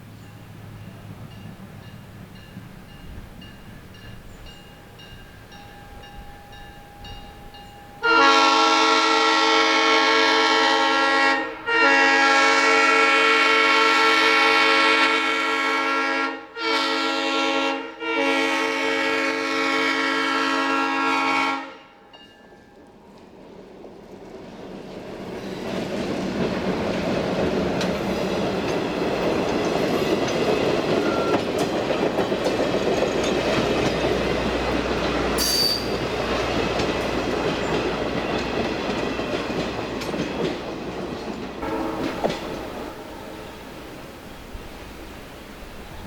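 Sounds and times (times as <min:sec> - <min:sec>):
locomotive air horn blasts: 0:08.0 - 0:22.0, 0:41.6 - 0:43.8.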